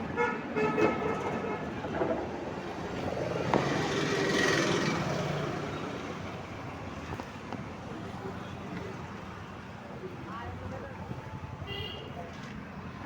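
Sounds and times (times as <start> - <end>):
motor vehicle passing: 2.9 - 6.2.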